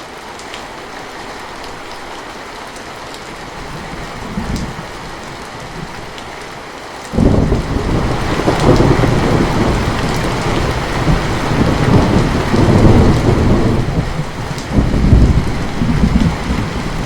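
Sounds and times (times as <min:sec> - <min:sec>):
heavy rain: 0:00.0 - 0:17.0
thunder rumbling: 0:03.6 - 0:06.1, 0:07.2 - 0:17.0.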